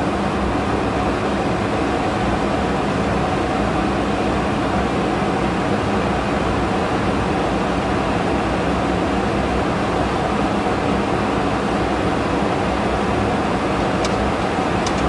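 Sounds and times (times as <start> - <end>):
airflow over flight deck: 11.0 - 15.0
jet engine noise: 11.4 - 15.0.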